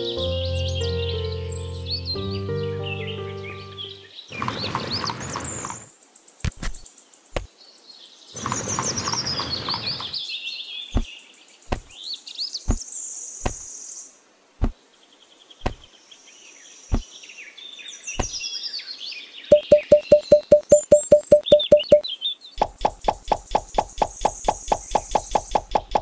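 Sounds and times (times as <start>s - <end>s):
birds chirping: 2.9s - 14.0s, 14.6s - 26.0s
rough noise: 4.3s - 5.9s.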